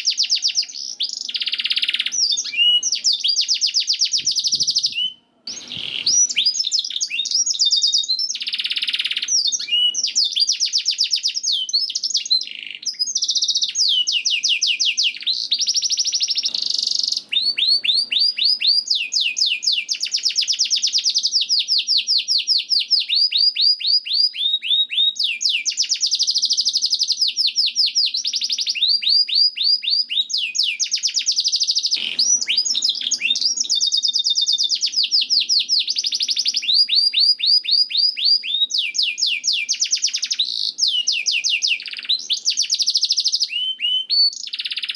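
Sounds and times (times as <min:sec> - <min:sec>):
canary singing trills: 0:00.0 - 0:44.9.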